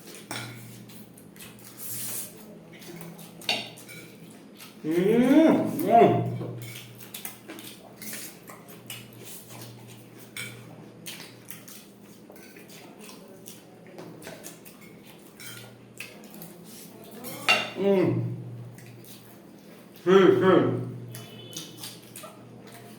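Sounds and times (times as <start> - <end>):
cutlery clinking on plates: 0.0 - 0.8, 2.8 - 4.4, 6.2 - 13.2, 14.2 - 16.2, 17.1 - 17.8.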